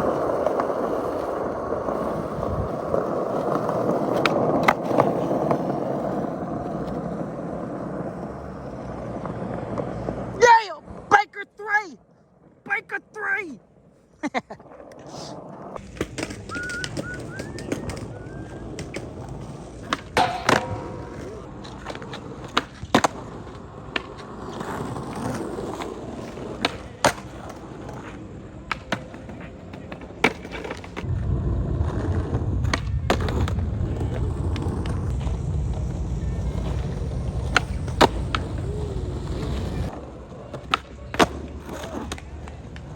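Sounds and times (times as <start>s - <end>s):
skateboard clacks: 0.0s - 10.6s, 15.8s - 31.1s, 31.8s - 42.9s
skateboard rolling: 0.0s - 11.1s, 13.6s - 42.9s.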